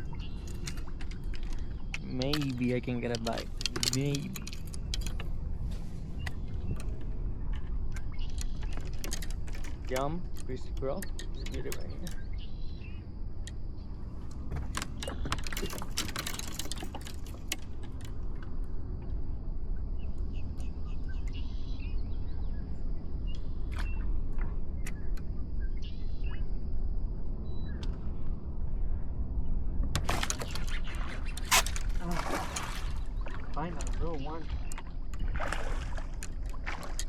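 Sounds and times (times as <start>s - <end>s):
wind rumble on microphone: 0.0s - 37.0s
fishing tackle clicks and rattles: 0.4s - 5.4s, 6.3s - 12.2s, 14.7s - 18.2s.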